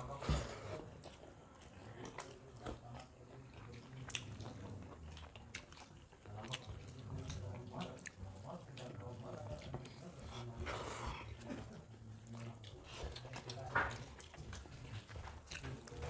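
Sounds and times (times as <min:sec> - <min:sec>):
chewing and mouth smacks: 0:00.8 - 0:16.0.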